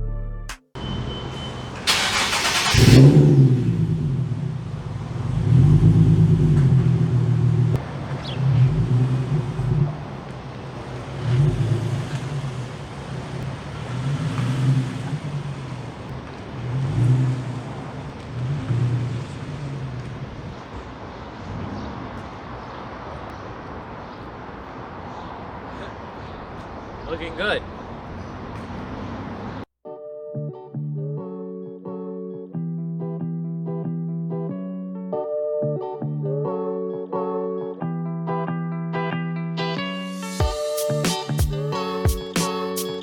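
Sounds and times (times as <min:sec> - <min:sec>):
car engine revving: 0:00.8 - 0:29.7.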